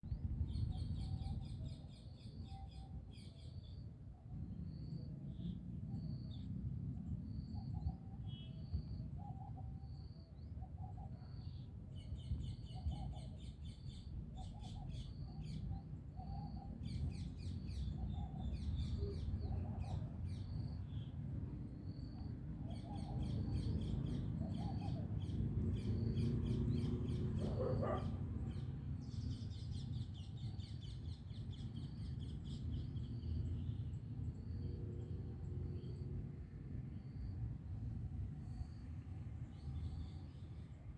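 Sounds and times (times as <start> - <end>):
birds chirping and trilling: 21.9 - 33.2.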